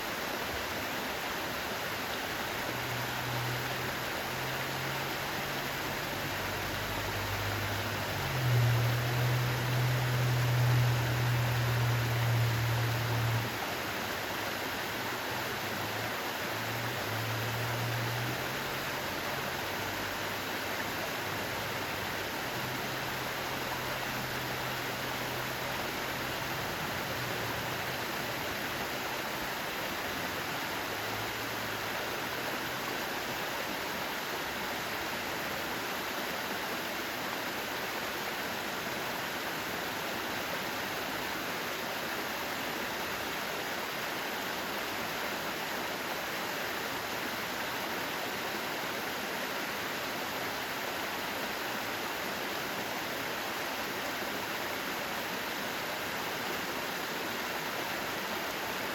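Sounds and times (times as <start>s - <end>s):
water rushing over rocks: 0.0s - 58.9s
low hum: 8.0s - 13.6s.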